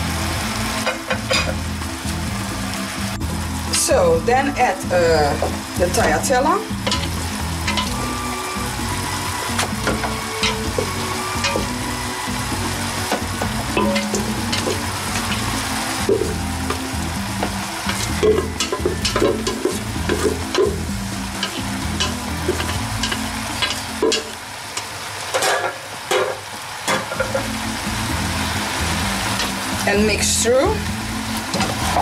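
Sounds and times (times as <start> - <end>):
light sizzle: 0.0 - 32.0
spatula scraping a frying pan: 6.8 - 8.0, 12.4 - 24.4.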